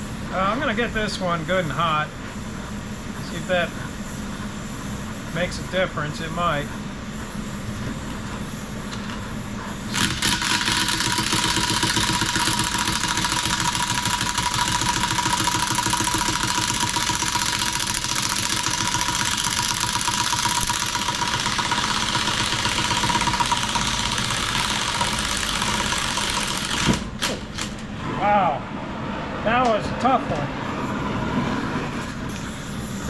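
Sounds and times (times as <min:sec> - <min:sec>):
torch flame hissing: 0:00.0 - 0:13.9, 0:29.4 - 0:33.0.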